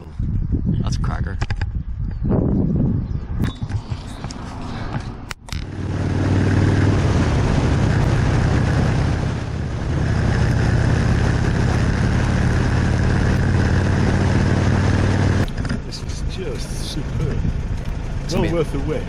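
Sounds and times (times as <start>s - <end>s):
wind rushing: 0.0s - 15.4s
motorcycle engine running: 5.6s - 19.0s.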